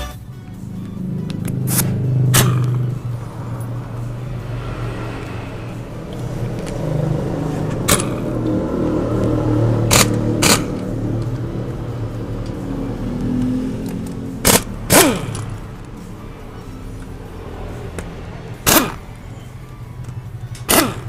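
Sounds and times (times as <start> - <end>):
pneumatic impact wrench bursts: 14.4 - 15.4, 20.6 - 21.0.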